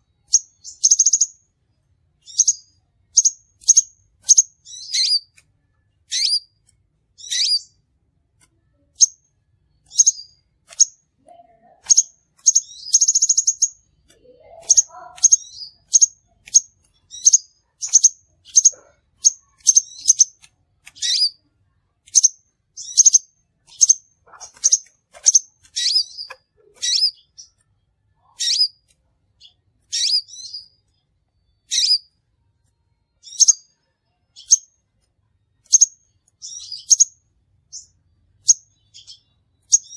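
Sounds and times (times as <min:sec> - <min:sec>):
bird chirping: 0:00.0 - 0:39.9
buzzy bird trill: 0:00.2 - 0:01.4, 0:02.2 - 0:05.4, 0:06.1 - 0:06.6, 0:07.2 - 0:07.8, 0:09.8 - 0:11.0, 0:11.6 - 0:27.6, 0:28.2 - 0:28.8, 0:29.4 - 0:30.9, 0:31.5 - 0:32.2, 0:33.2 - 0:34.7, 0:35.6 - 0:39.9.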